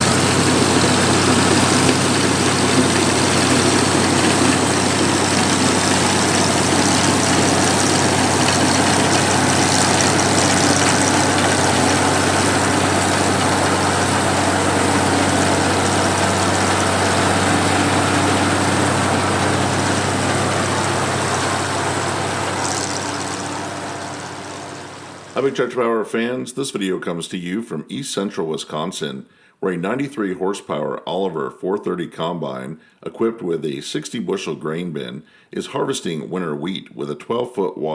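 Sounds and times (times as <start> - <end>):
combine engine drone: 0.0 - 25.6
working machinery: 0.0 - 25.6.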